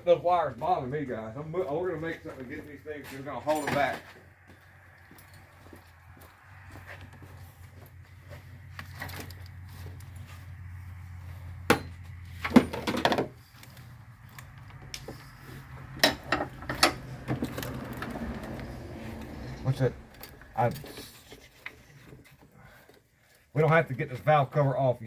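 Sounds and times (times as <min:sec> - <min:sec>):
tools and parts clattering: 0:03.1 - 0:04.2, 0:08.3 - 0:10.5, 0:11.7 - 0:23.4.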